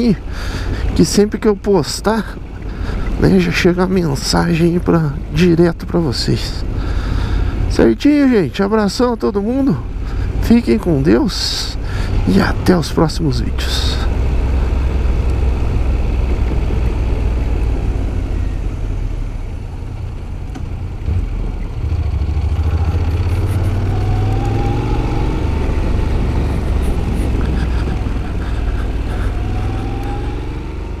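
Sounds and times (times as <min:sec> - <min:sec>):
motorcycle engine running: 0:13.9 - 0:31.0.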